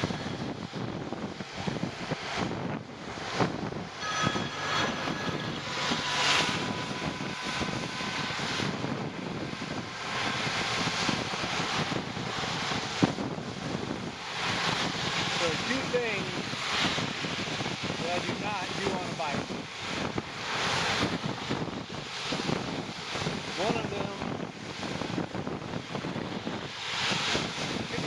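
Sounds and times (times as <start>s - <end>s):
rushing wind: 0.0s - 28.0s
bicycle road noise in rain: 7.6s - 28.0s.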